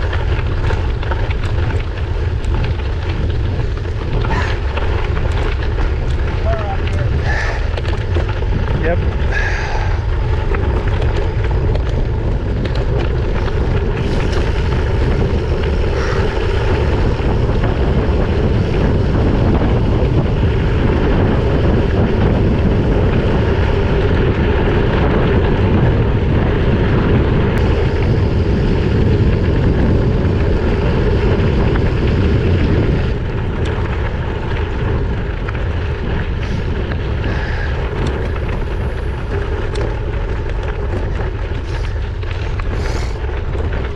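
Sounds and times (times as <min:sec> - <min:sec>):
bike riding noise: 0:00.0 - 0:43.9
wind buffeting microphone: 0:00.0 - 0:43.9.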